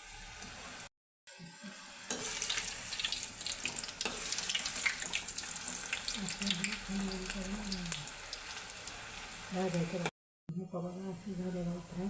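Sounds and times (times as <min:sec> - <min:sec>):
fritters deep-frying in oil: 0:02.1 - 0:10.1.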